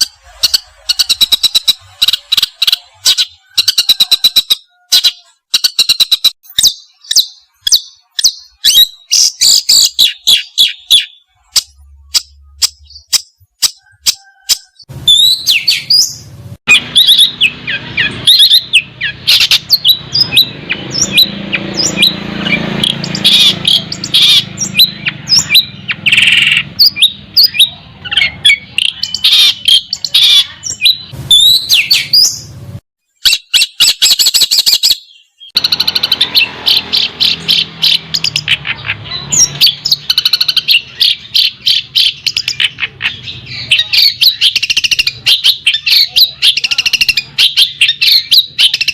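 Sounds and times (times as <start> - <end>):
songbird singing: 0.0 - 48.9.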